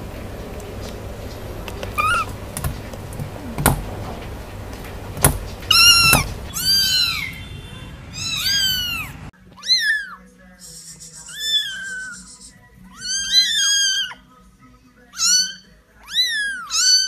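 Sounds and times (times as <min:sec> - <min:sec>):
kittens mewing: 0:00.6 - 0:04.5, 0:05.4 - 0:14.3, 0:15.1 - 0:17.0
sharp knocks: 0:02.2 - 0:06.6.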